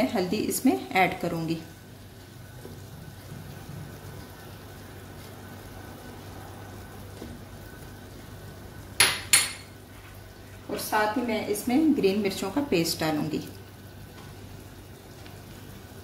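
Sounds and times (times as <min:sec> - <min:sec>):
meat sizzling in a pot: 0:00.0 - 0:16.0
spatula striking a pot: 0:09.0 - 0:09.7.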